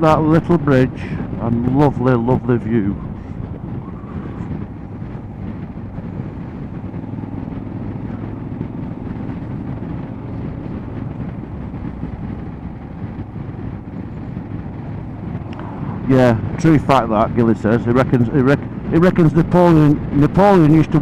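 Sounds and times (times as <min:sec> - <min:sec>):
motorcycle engine droning: 0:00.0 - 0:21.0.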